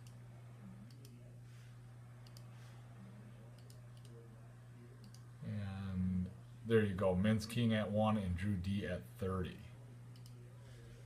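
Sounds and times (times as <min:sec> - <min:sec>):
low steady hum: 0:00.0 - 0:11.0
computer mouse and key clicks: 0:00.9 - 0:01.2, 0:02.2 - 0:02.5, 0:03.6 - 0:04.2, 0:05.0 - 0:05.2, 0:10.1 - 0:10.4.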